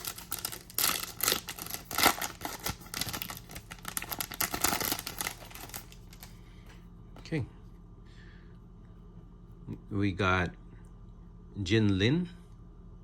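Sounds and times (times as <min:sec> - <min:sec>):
foil wrapper crinkling and tearing: 0:00.0 - 0:06.3.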